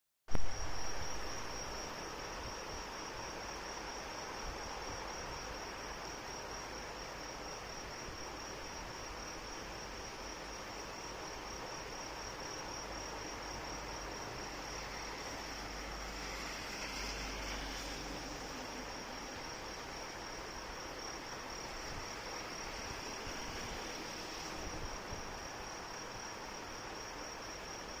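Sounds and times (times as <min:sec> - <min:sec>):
rain hiss: 0:00.3 - 0:28.0.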